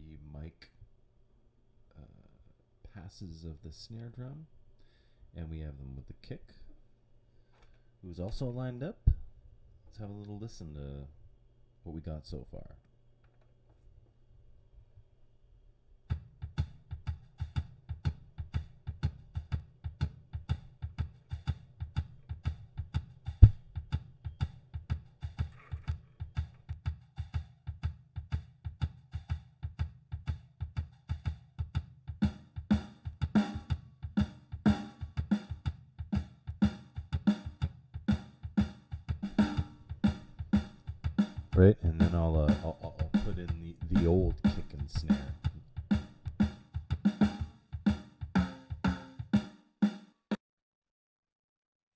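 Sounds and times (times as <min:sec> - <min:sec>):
kick drum and snare drum: 0:16.1 - 0:50.1.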